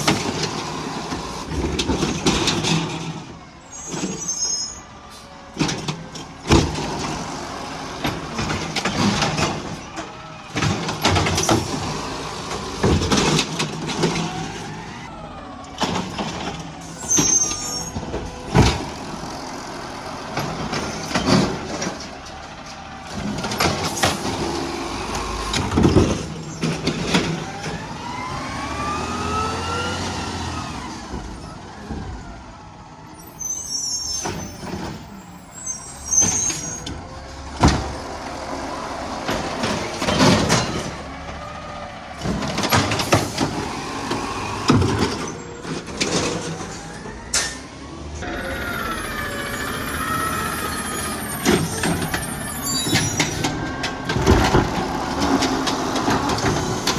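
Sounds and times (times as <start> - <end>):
garbage truck engine running: 0.0 - 56.9
bangs and clatter: 39.1 - 41.4, 42.2 - 56.9
engine revving whine: 46.2 - 56.9.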